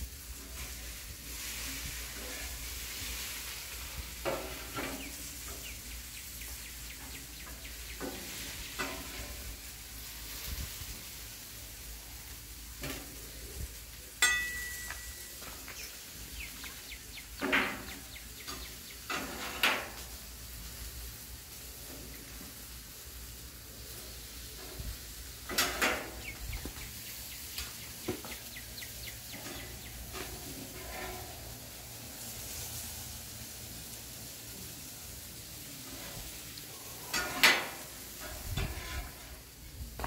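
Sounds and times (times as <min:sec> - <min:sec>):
food frying sizzle: 0:00.0 - 0:14.4, 0:15.1 - 0:40.0
cooking utensils scraping and knocking: 0:04.2 - 0:05.9, 0:07.0 - 0:09.5, 0:17.4 - 0:20.1, 0:25.4 - 0:26.8, 0:29.2 - 0:31.7, 0:35.8 - 0:39.6
sharp metallic clink: 0:14.2 - 0:15.4.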